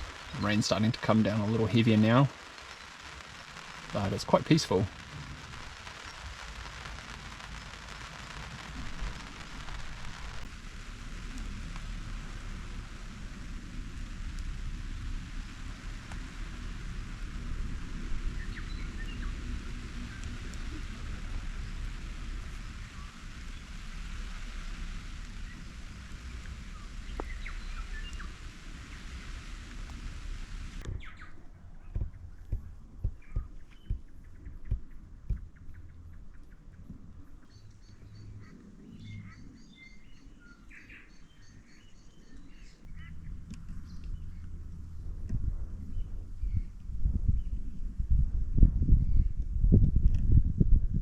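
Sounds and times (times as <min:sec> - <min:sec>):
steady rain: 0:00.0 - 0:30.9
wind rumble on microphone: 0:03.2 - 0:51.0
faint ticks: 0:11.2 - 0:30.9.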